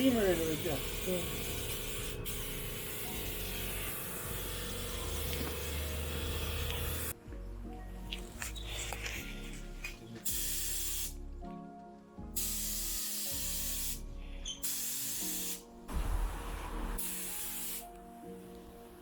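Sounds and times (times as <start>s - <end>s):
spray paint hissing bursts: 0.4s - 7.1s, 10.2s - 11.2s, 12.4s - 17.9s.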